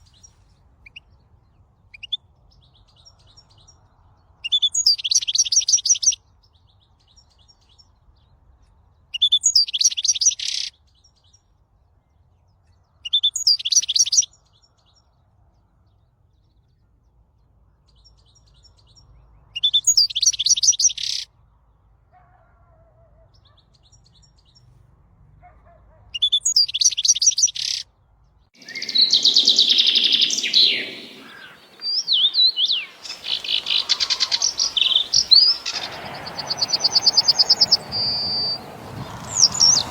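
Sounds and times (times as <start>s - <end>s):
songbird trilled song: 9.2s - 11.4s, 12.9s - 15.0s, 17.9s - 21.3s, 26.2s - 27.8s, 28.6s - 39.9s
bird chirping: 28.6s - 39.9s.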